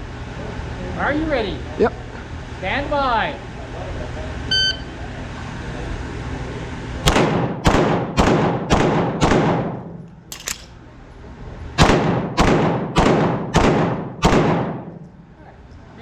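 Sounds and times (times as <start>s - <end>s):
pistol shots: 7.1s - 9.7s, 10.3s - 10.8s, 11.8s - 14.9s
magazine reload clicks: 10.3s - 10.8s.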